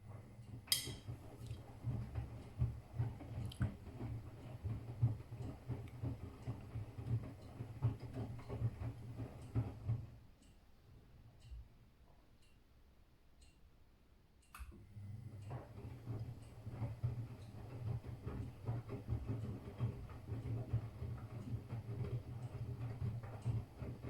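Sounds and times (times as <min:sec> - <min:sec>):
wet laundry tumbling: 0:00.0 - 0:10.2, 0:15.4 - 0:24.0
washing machine motor hum: 0:00.0 - 0:10.4, 0:14.7 - 0:24.0.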